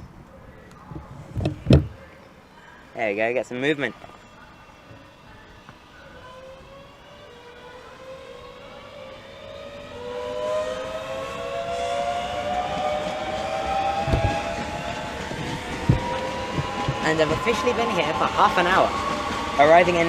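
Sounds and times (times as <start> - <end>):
low thumps: 1.0 - 2.1, 14.0 - 17.5
electric train motors whining: 3.5 - 20.0.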